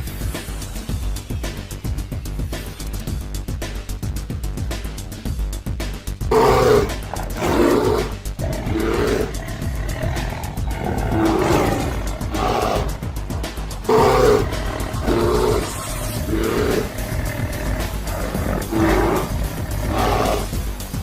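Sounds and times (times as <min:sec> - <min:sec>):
background music: 0:00.0 - 0:21.0
big cat roaring: 0:06.3 - 0:20.7.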